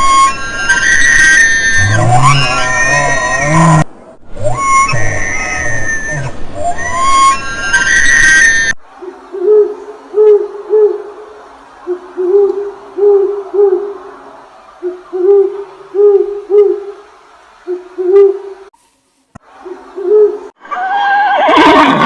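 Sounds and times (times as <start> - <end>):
owl hooting: 4.4 - 14.1, 14.8 - 17.0, 17.6 - 18.6, 19.6 - 21.1.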